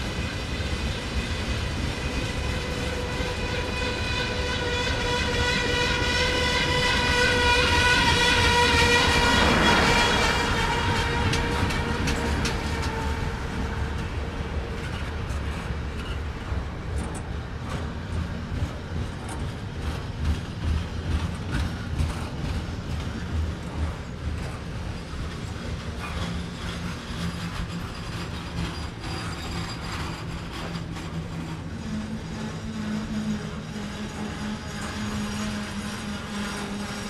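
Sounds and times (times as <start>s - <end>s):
train cars rumbling past: 0.0s - 37.0s
wheels clicking on rails: 8.0s - 37.0s.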